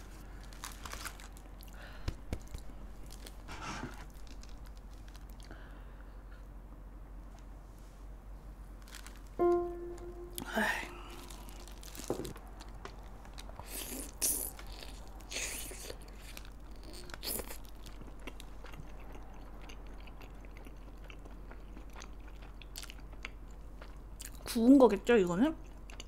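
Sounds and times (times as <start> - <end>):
crunchy biting and chewing: 11.0 - 24.4.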